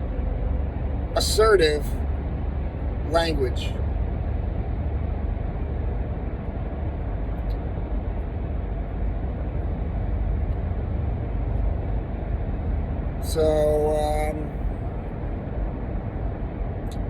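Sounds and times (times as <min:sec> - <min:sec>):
low vehicle rumble: 0:00.0 - 0:17.0.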